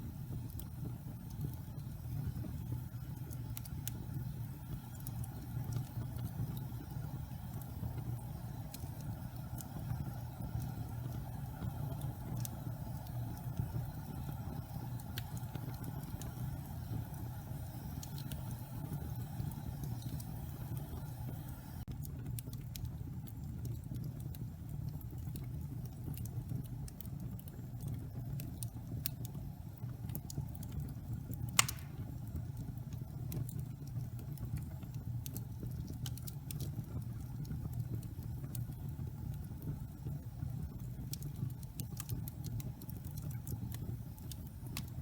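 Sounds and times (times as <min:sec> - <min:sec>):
wood fire crackling: 0:00.0 - 0:45.0
loud fire pop: 0:31.6 - 0:32.2.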